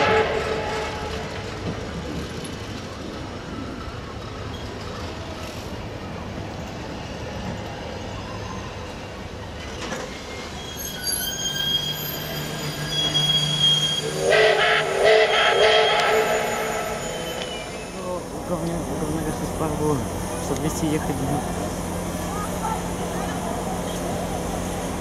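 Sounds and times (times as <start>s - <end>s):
train carriages rolling on rails: 0.0s - 25.0s
wheels and brakes squealing: 3.5s - 18.4s.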